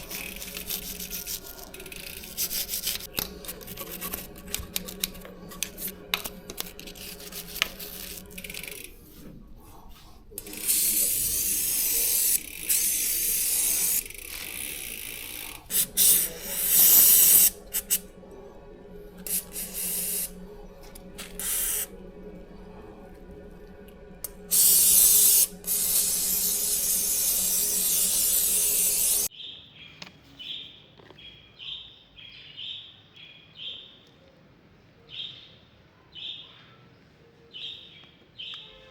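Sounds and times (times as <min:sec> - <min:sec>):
spray hissing: 0:10.4 - 0:18.1, 0:19.2 - 0:20.4, 0:21.2 - 0:21.9, 0:24.2 - 0:29.3.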